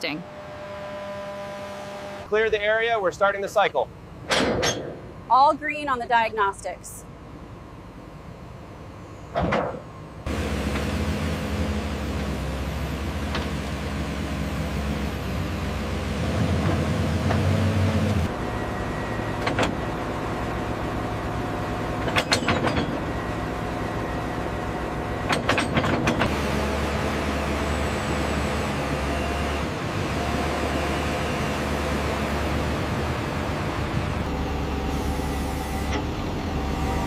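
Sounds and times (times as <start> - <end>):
excavator engine running: 0.0 - 37.0
metallic clanks: 4.2 - 5.1.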